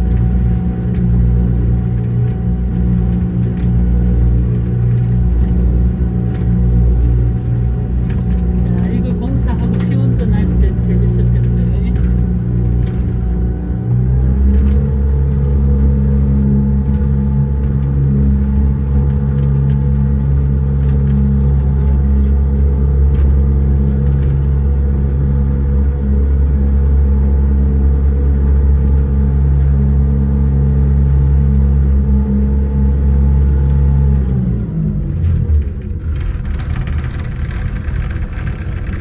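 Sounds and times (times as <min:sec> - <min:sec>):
engine running steadily: 0:00.0 - 0:39.0.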